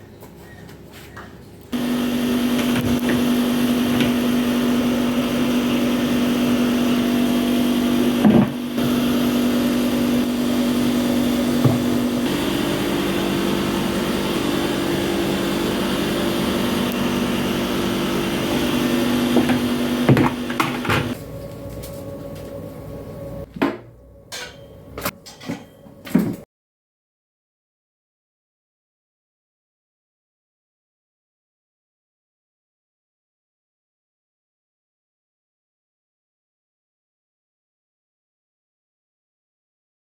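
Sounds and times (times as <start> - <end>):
small motor humming: 1.7 - 21.9.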